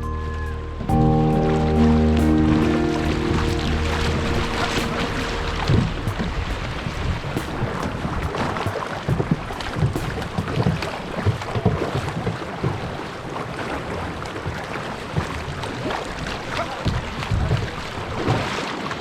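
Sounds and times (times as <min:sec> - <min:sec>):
wind buffeting microphone: 0:00.0 - 0:13.0
river water splashing: 0:00.0 - 0:19.0.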